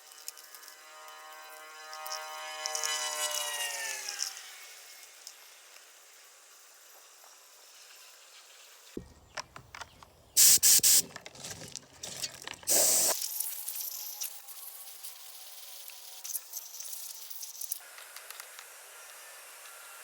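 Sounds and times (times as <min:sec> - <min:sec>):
hissing spray from nozzle: 0:10.4 - 0:11.0, 0:12.7 - 0:14.3.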